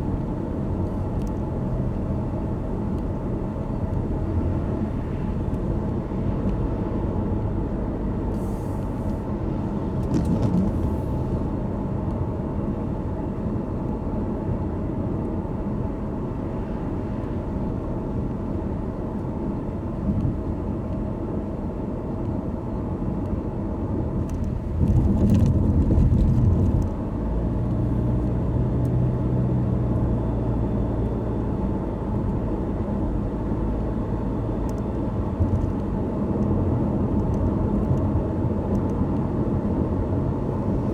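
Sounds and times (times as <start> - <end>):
car driving on wet road: 0.0 - 13.2, 23.1 - 40.9.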